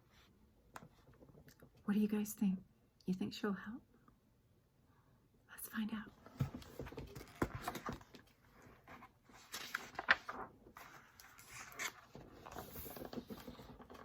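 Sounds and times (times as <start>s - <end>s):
book page turning: 6.4s - 14.0s.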